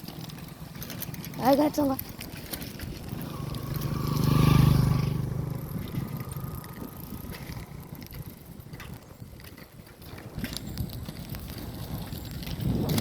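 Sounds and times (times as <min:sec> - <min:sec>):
motor vehicle passing: 0:00.0 - 0:09.1.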